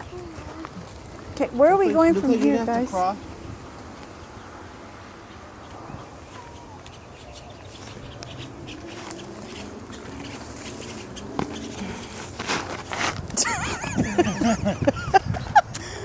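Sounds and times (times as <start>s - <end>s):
leaves and twigs crunching underfoot: 7.6s - 13.3s.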